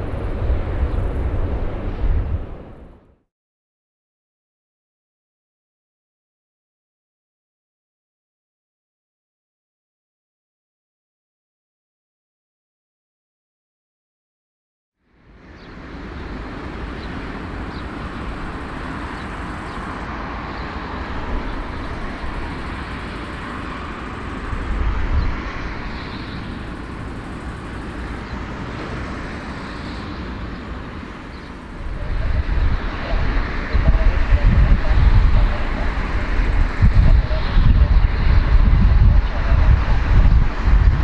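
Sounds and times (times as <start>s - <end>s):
jet airliner rumble and hiss: 0.0s - 3.1s, 15.1s - 41.0s.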